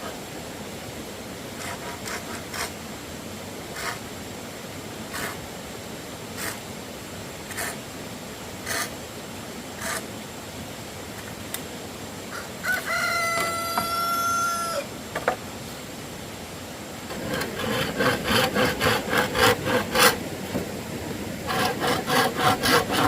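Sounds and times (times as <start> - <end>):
rooster crowing: 12.3 - 14.9
short scraping strokes: 17.1 - 20.3, 21.4 - 23.0.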